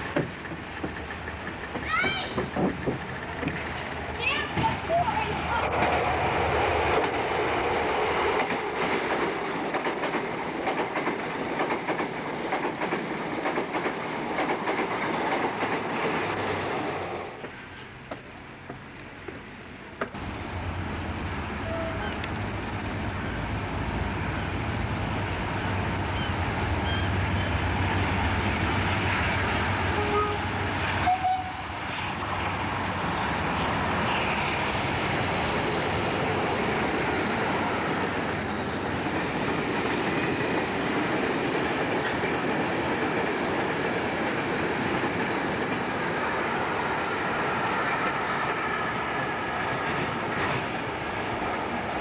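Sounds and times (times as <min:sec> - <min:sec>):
wagons rumbling and clattering past: 0:00.0 - 0:18.3
diesel locomotive engine hum: 0:00.0 - 0:52.0.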